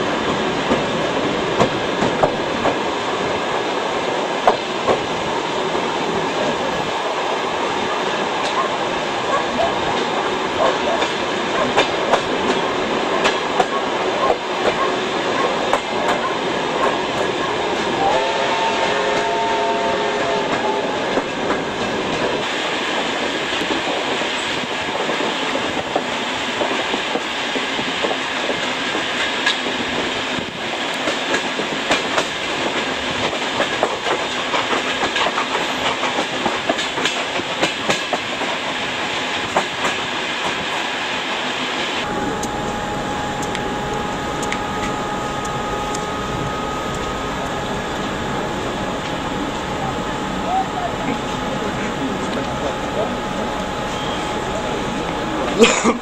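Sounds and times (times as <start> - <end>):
train wheels clicking over rail joints: 0.1 - 5.9, 8.4 - 18.0, 20.2 - 40.7
locomotive whistle: 17.8 - 21.3, 42.0 - 55.3.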